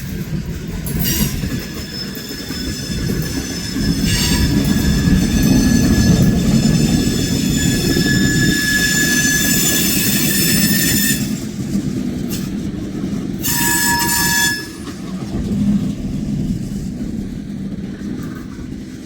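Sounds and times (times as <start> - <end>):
freight train cars rumbling: 0.0 - 19.0
steel wheel squeal: 0.8 - 11.7, 13.4 - 15.4.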